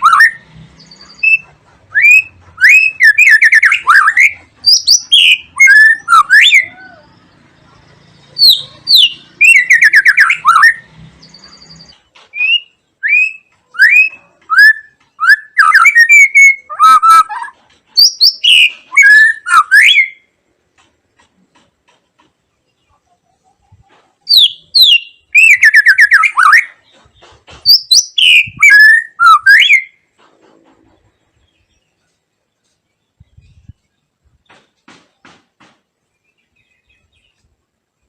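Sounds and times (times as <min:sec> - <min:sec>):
bird singing whistled notes: 0:00.0 - 0:07.5, 0:08.1 - 0:20.3, 0:24.3 - 0:26.8, 0:27.6 - 0:30.0.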